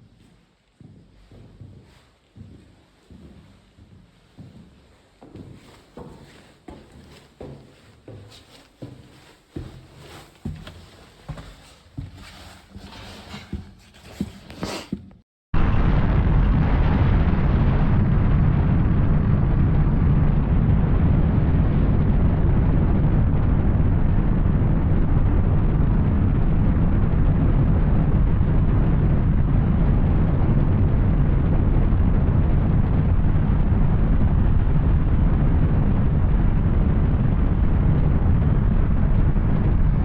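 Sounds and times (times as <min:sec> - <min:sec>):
wind noise on microphone: 0:15.6 - 0:40.0.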